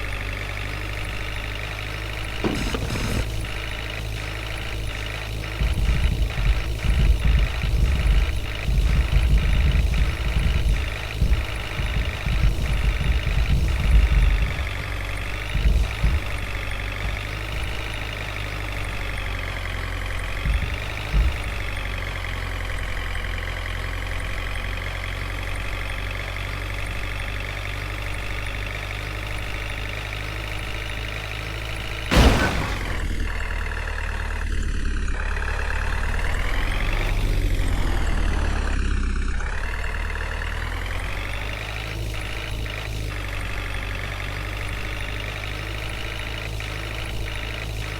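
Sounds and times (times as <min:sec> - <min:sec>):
tractor diesel engine running: 0:00.0 - 0:47.9
sharp knock: 0:02.4 - 0:03.3.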